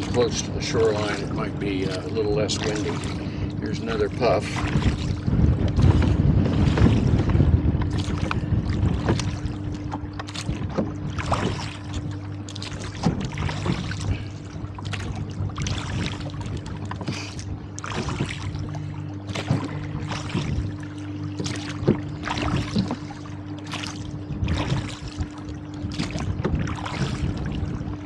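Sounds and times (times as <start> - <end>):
oar strokes splashing: 0.0 - 28.0
wind rumbling on microphone: 0.0 - 28.0.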